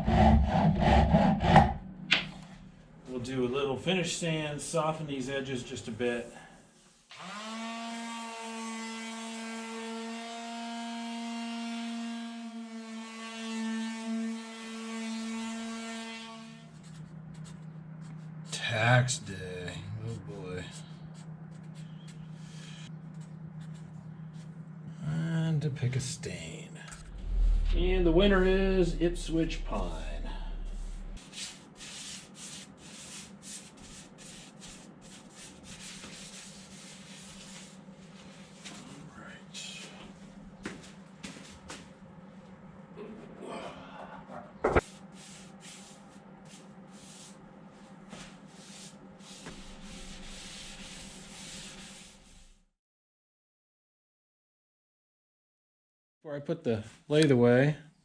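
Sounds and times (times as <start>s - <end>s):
rag rubbing stain onto wood: 48.1s - 52.4s.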